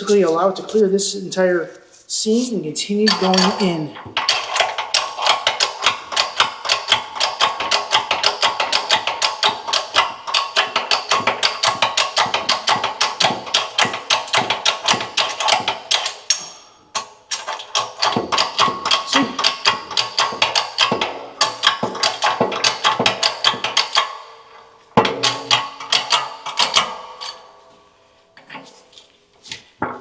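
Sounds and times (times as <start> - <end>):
ratchet wrench clicking: 4.2 - 24.3.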